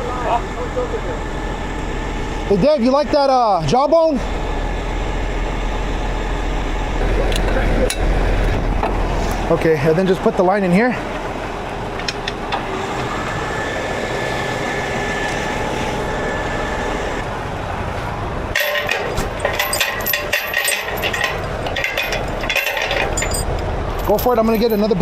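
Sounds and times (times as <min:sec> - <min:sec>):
tow truck engine running: 0:00.0 - 0:25.0
metal chains clinking: 0:18.6 - 0:25.0.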